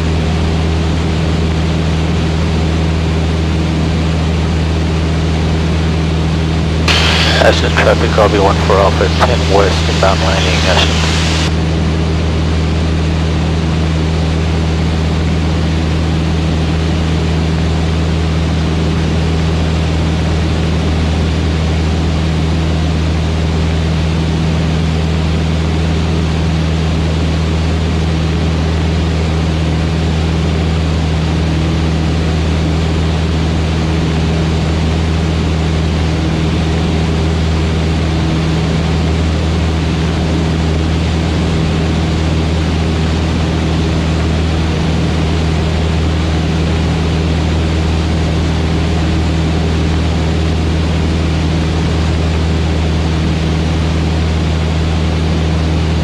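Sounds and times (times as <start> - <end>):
propeller aircraft engine droning: 0.0 - 11.5.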